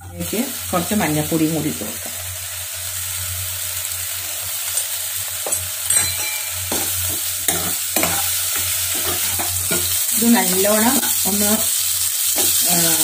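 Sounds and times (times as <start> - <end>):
food sizzling in a frying pan: 0.0 - 13.0
spatula scraping a pan: 6.6 - 10.0.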